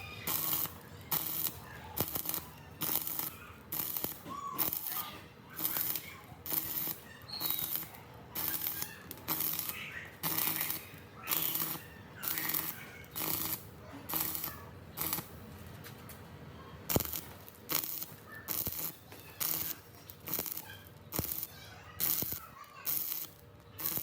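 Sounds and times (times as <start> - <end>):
sharp clicks: 5.6 - 16.2, 16.9 - 24.0.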